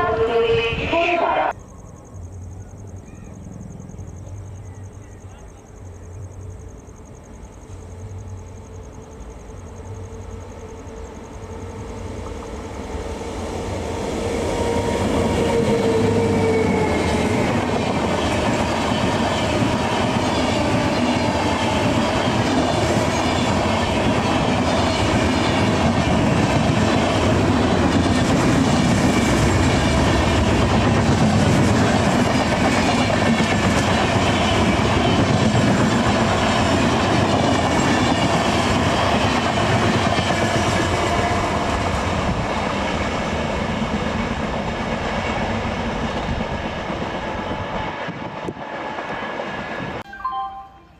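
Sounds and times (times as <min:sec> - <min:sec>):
express train passing: 0:00.0 - 0:50.9.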